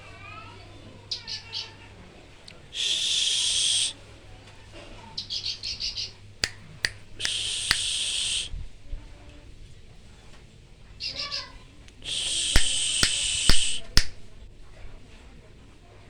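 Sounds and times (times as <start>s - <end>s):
sharp bird clicks: 6.4s - 8.2s, 12.3s - 14.2s.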